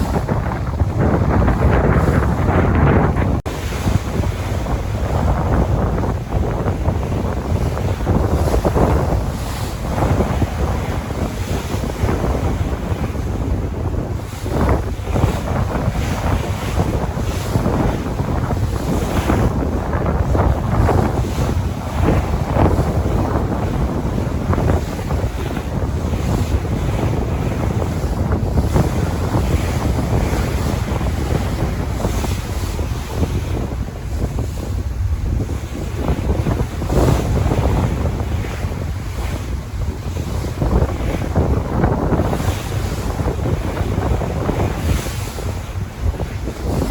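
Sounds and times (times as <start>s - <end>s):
sea waves breaking: 0.0s - 46.9s
wind rumbling on microphone: 0.0s - 46.9s.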